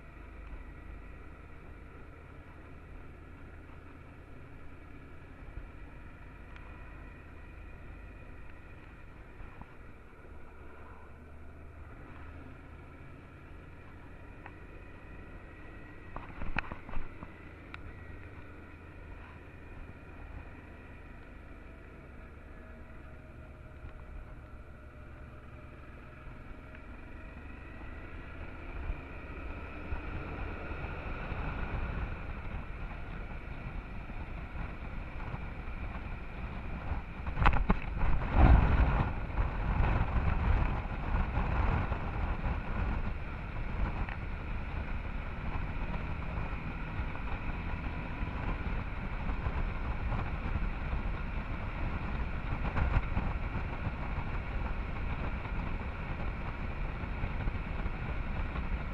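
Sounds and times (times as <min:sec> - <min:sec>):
motorcycle engine running: 0:00.0 - 0:58.9
wind rushing over microphone: 0:25.6 - 0:58.9.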